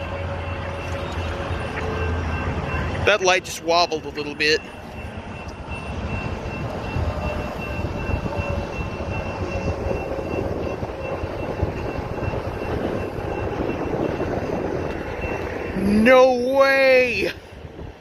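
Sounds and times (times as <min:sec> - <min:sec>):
train rumbling: 0:00.0 - 0:16.1
level-crossing warning bell: 0:00.0 - 0:16.5.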